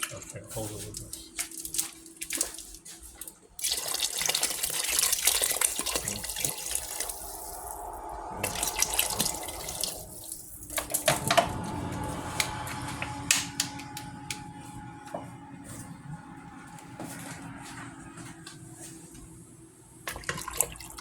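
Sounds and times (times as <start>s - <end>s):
water running from tap: 3.6s - 11.3s, 20.1s - 21.0s.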